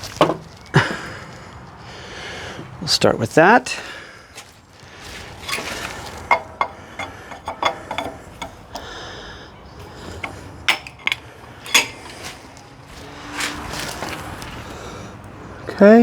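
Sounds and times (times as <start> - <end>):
metal clinks and knocks: 5.4 - 8.9, 10.0 - 12.6.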